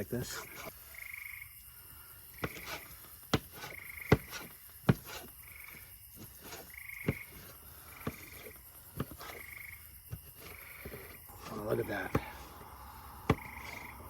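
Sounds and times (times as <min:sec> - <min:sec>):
frogs trilling: 0:00.0 - 0:14.0.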